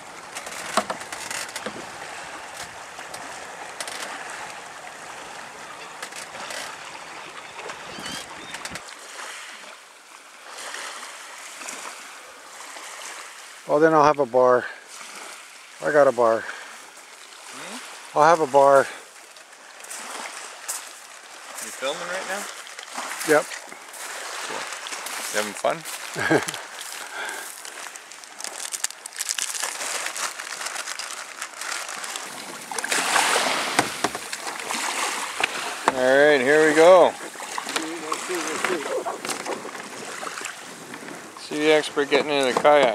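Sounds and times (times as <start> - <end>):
water lapping and splashing: 0.0 - 42.9
plastic wrapper crinkling: 27.4 - 32.4.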